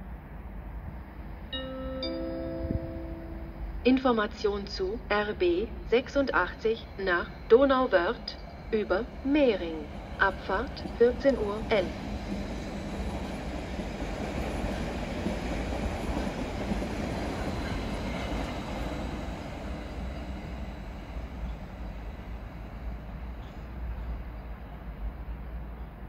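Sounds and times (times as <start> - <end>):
train running past on rails: 0.0 - 26.0.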